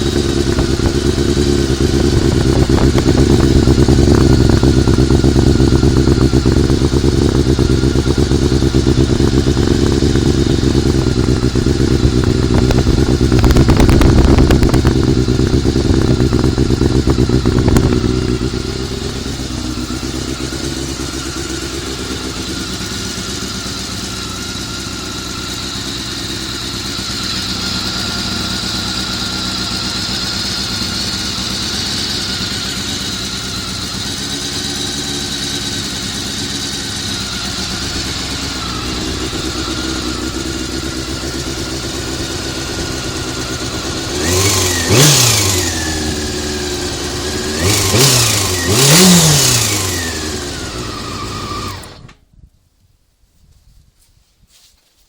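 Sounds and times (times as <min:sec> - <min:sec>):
high engine whine: 0:00.0 - 0:52.2
motorcycle engine revving and idling: 0:00.0 - 0:52.3.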